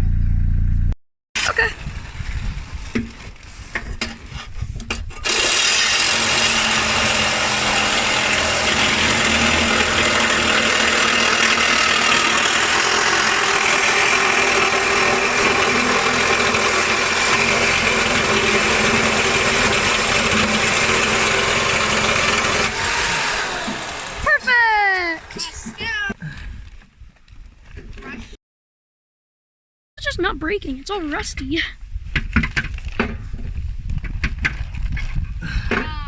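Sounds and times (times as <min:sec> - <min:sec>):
power tool whining: 0:05.2 - 0:26.0.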